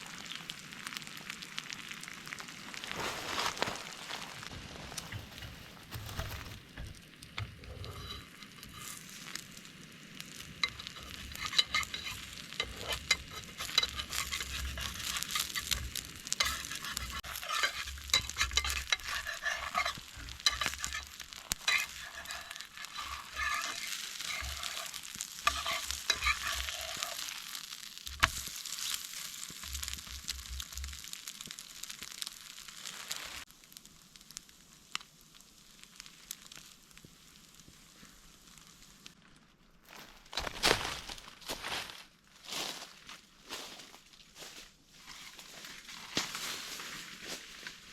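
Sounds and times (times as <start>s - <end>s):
food sizzling in a pan: 0.0s - 39.2s, 44.4s - 47.9s
utensil scraping a pan: 5.0s - 9.4s, 10.6s - 30.2s.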